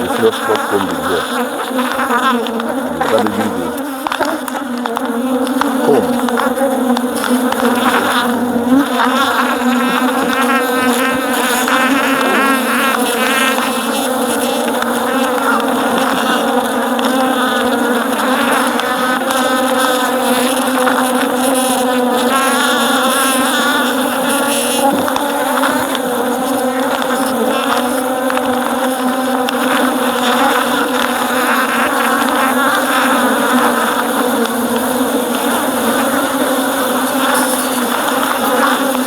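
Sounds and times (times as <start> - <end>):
single bees whining: 0.0 - 18.6
honeybees buzzing: 0.0 - 39.0.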